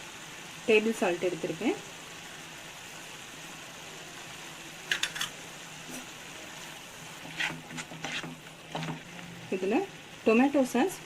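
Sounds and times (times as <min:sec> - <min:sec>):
faint steady hiss: 0:00.0 - 0:11.0
kitchen utensils clinking: 0:04.9 - 0:05.4.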